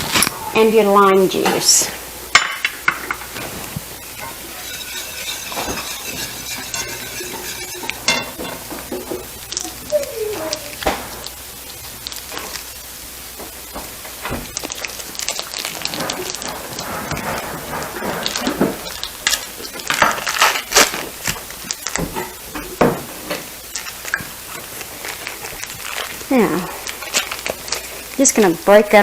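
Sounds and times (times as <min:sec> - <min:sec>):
sauce sizzling in a pan: 0:02.0 - 0:29.0
stirring clicks and scrapes: 0:03.0 - 0:09.7.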